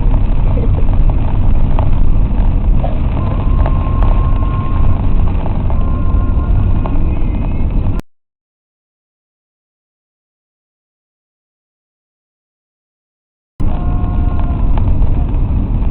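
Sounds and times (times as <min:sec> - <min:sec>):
car cabin road and engine rumble: 0:00.0 - 0:08.0, 0:13.6 - 0:15.9.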